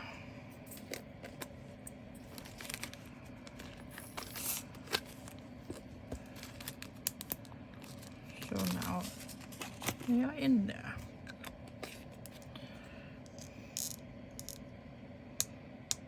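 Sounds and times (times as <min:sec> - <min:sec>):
plastic bags crinkling: 0:02.2 - 0:10.5.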